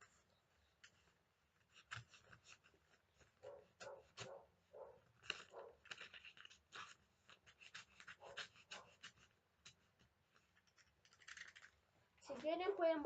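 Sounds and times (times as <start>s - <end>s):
box cutter slicing paper: 5.1s - 10.0s.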